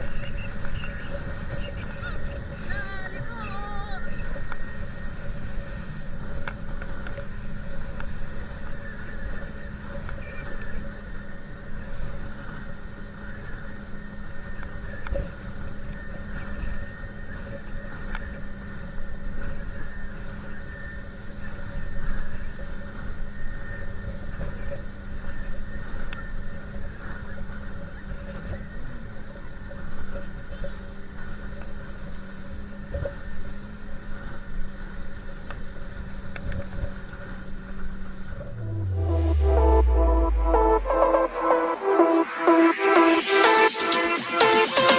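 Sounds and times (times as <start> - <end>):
boat engine running: 0.0 - 44.9
wind and water rumble: 0.0 - 44.9
rumbling noise: 38.2 - 44.9.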